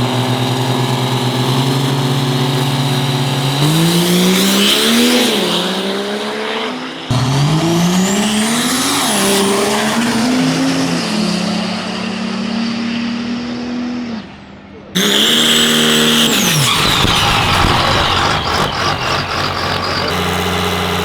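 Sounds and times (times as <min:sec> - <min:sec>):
truck engine revving: 0:00.0 - 0:06.4, 0:07.1 - 0:12.4, 0:15.0 - 0:21.0
high whine: 0:15.0 - 0:21.0.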